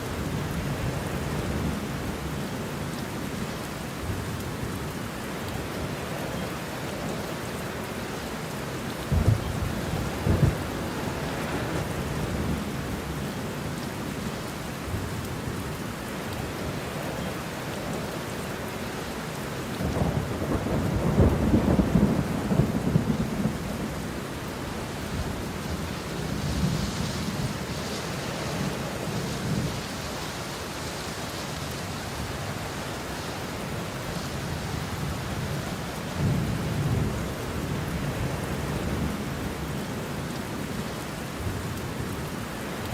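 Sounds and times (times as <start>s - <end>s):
steady rain: 0.0s - 42.9s
thunder claps and rumble: 9.1s - 13.0s, 19.8s - 23.9s.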